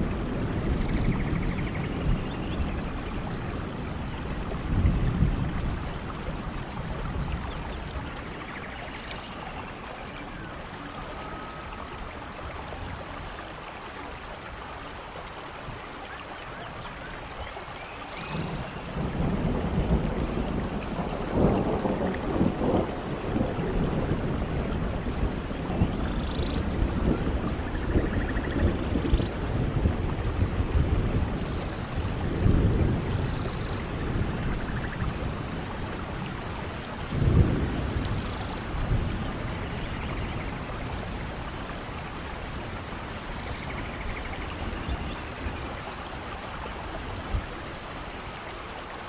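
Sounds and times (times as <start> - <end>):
rolling thunder: 0.0 - 8.4, 18.2 - 45.6
steady rain: 0.0 - 49.0.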